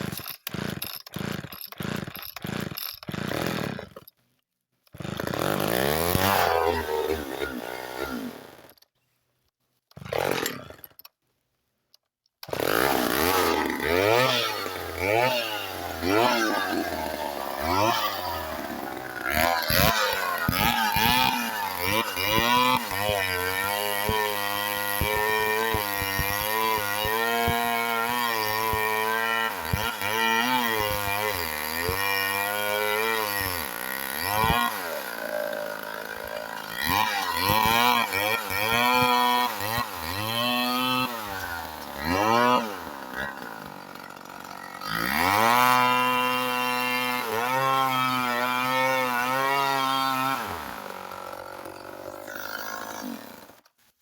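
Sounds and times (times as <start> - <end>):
chainsaw revving while cutting: 0.0 - 4.0, 5.0 - 8.8, 10.0 - 10.9, 12.5 - 53.6.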